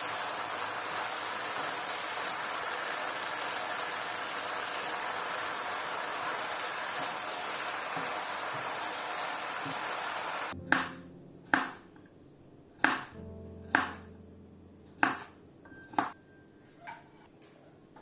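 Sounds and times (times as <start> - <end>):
soft piano notes: 10.5 - 18.0.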